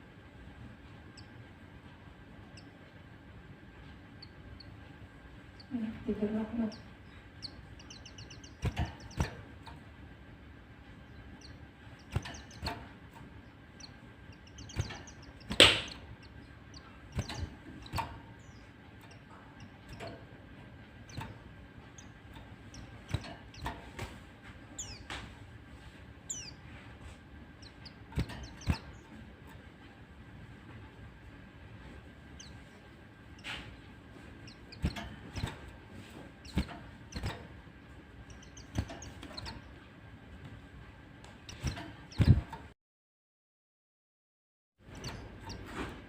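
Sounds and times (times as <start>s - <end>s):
bird chips: 6.6s - 9.8s, 11.0s - 20.3s.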